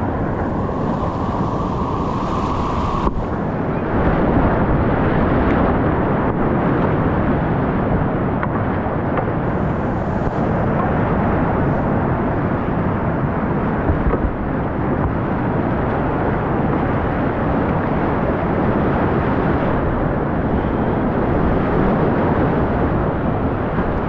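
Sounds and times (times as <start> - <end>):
whitewater rushing: 0.0 - 4.8.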